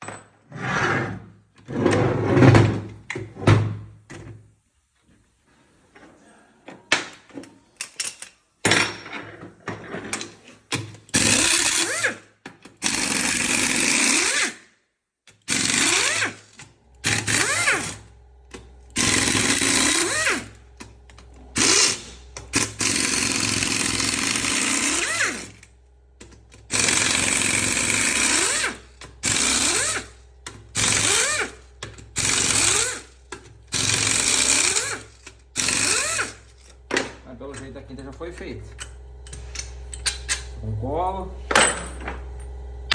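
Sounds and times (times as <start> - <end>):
power tool whining in bursts: 15.4 - 42.9.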